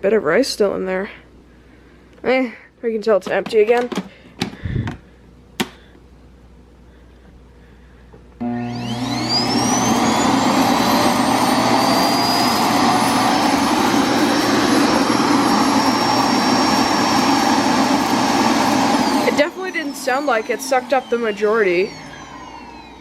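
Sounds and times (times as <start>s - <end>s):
suction motor whining: 8.4s - 23.0s.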